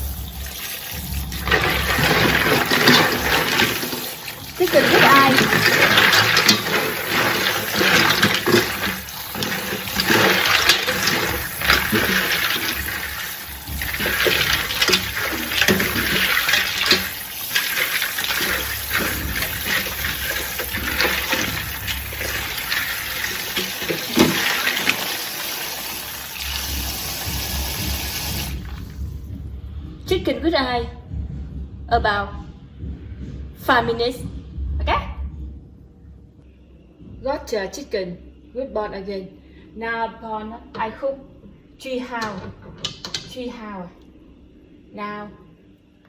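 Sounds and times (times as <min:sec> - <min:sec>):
water pouring into a bowl: 0:00.0 - 0:29.1.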